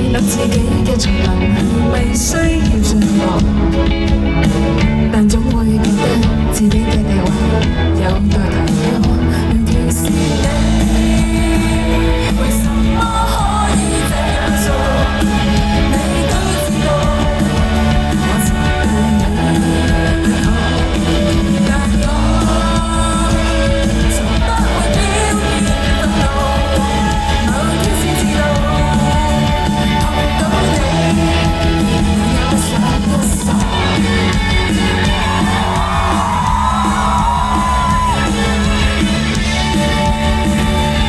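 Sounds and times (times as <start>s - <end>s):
person singing: 0.0s - 4.1s, 4.9s - 41.0s
live band playing: 0.0s - 41.0s
crowd yelling: 10.4s - 41.0s.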